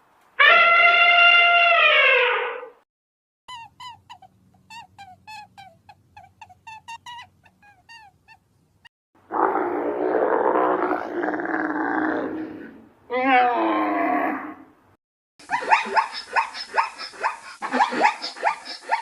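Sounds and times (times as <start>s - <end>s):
animal wavering cry: 0.4s - 2.8s, 13.1s - 14.6s
animal rough growling call: 9.3s - 12.8s.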